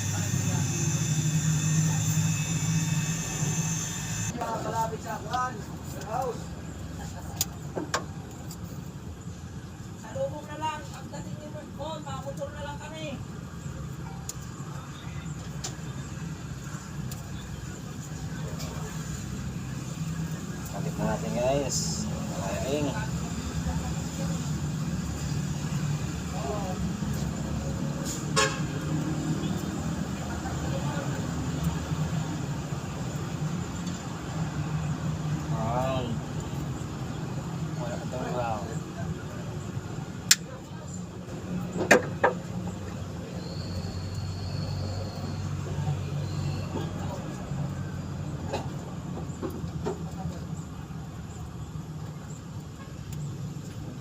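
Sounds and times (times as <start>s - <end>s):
vehicle engine humming: 0.0s - 54.0s
vehicle horn toot: 28.3s - 28.8s.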